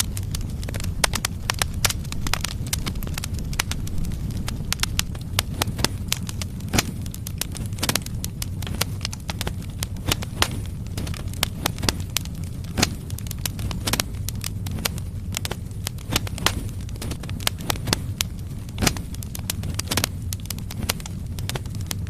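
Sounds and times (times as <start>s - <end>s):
logs crackling in fireplace: 0.0s - 22.0s.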